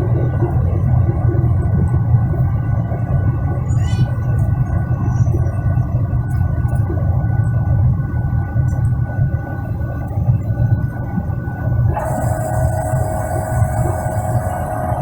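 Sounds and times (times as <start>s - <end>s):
airplane cabin engine drone: 0.0s - 15.0s
faint whining tones: 0.0s - 15.0s.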